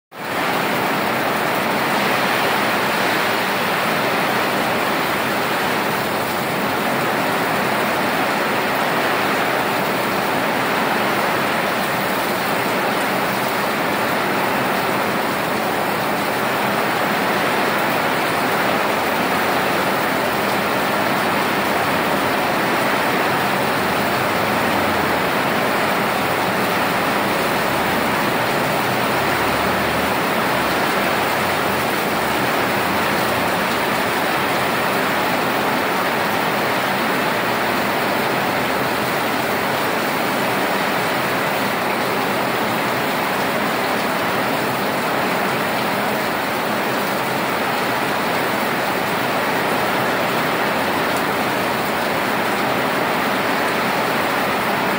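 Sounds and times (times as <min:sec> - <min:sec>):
heavy rain pouring: 0:00.1 - 0:54.9.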